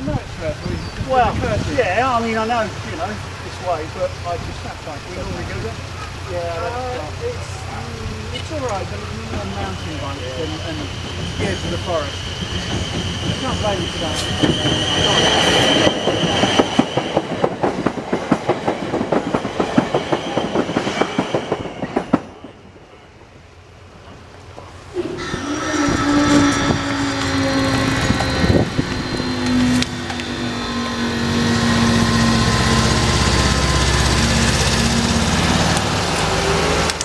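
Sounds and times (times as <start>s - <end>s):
vehicle engine humming: 0.0s - 12.3s, 24.8s - 37.0s
train wheels clattering on rails: 8.4s - 23.4s, 24.0s - 37.0s.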